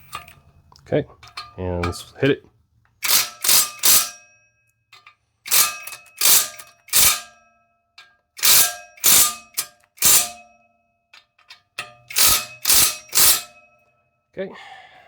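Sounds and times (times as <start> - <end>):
impact wrench bursts: 3.0 - 4.2, 5.4 - 7.4, 8.4 - 10.5, 11.8 - 13.6
metal parts ringing: 3.0 - 7.4, 8.0 - 10.5, 11.2 - 13.7.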